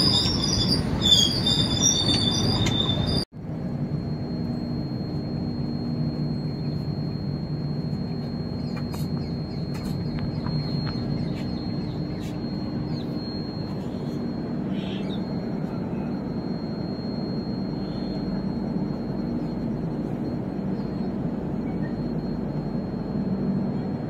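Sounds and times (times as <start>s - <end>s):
train wheels rumbling on rails: 0.0s - 3.2s.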